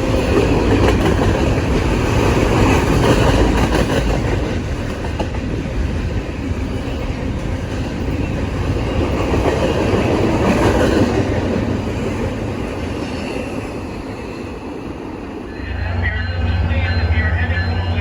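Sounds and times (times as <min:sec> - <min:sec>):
train wheels on rails: 0:00.0 - 0:18.0.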